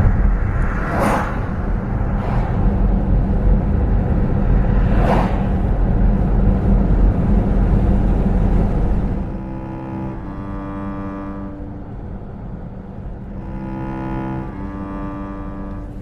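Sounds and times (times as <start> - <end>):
low rumble: 0.0 - 16.0
brief whoosh: 0.2 - 6.0.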